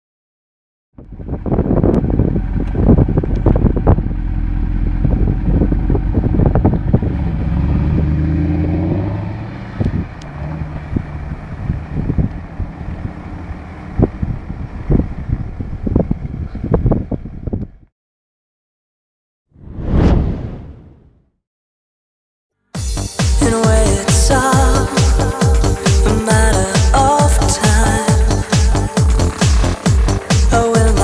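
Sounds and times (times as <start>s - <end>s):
car engine accelerating hard: 1.4s - 15.8s
sharp exhaust cracks: 25.8s - 31.0s.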